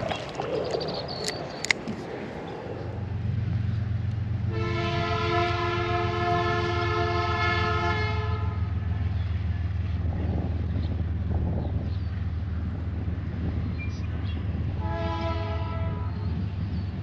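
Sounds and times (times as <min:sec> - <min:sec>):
low rumble of passing train: 0:00.8 - 0:17.0
train horn chord: 0:04.4 - 0:08.8, 0:14.8 - 0:16.2.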